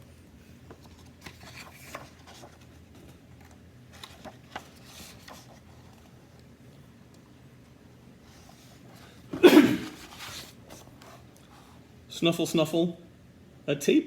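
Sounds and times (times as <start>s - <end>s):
low room hum: 0.0s - 14.0s
paper pages rustling: 0.6s - 6.4s, 9.8s - 11.8s.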